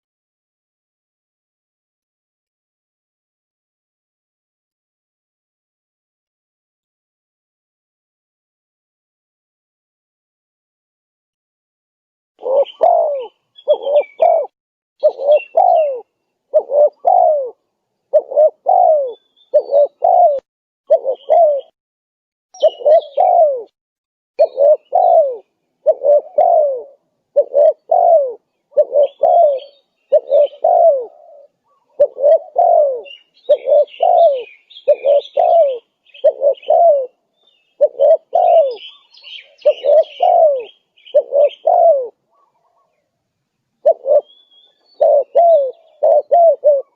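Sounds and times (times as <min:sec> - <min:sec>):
dove cooing: 0:12.4 - 0:21.8, 0:22.6 - 0:23.8, 0:24.4 - 0:43.0, 0:43.8 - 0:46.9
small birds chirping: 0:12.4 - 0:21.8, 0:22.6 - 0:23.7, 0:24.4 - 0:46.9.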